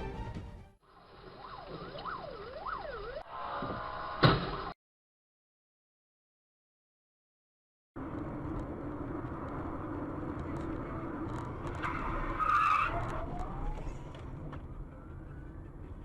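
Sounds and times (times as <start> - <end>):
car road and engine noise: 0.8 - 4.4, 8.0 - 16.0.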